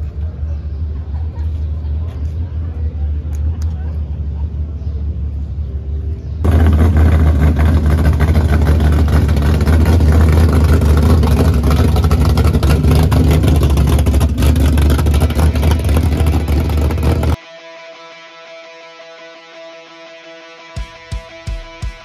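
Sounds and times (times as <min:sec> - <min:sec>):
car exhaust rumble: 0:00.0 - 0:17.4.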